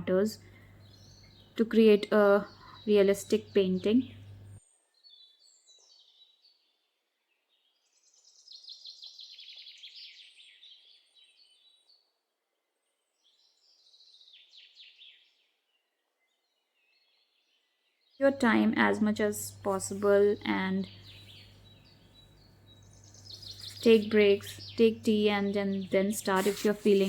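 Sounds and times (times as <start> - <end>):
small bird singing trilled phrases: 0.0 - 6.8, 16.2 - 27.0.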